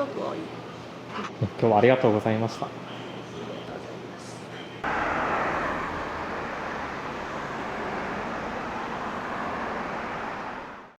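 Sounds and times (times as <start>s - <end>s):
road traffic hiss: 4.8s - 11.0s.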